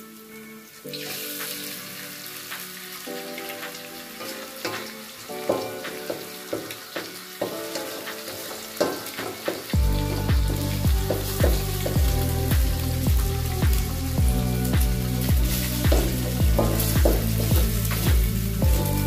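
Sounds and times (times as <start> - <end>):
egg sizzling in hot oil: 0.0 - 19.0
soft background music: 0.0 - 19.0
utensil tapping against pan: 4.6 - 9.7, 15.9 - 18.3.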